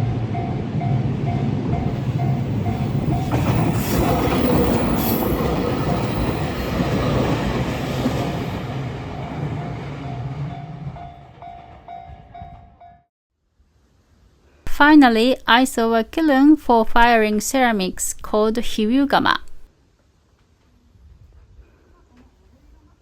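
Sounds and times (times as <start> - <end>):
train passing: 0.0 - 13.0.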